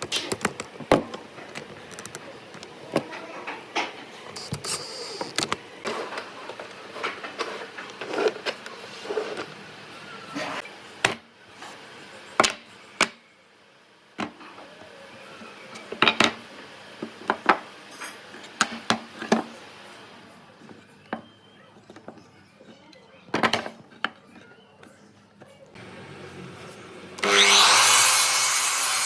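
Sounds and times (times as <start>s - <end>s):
wooden pieces and tools clattering: 0.0s - 9.5s.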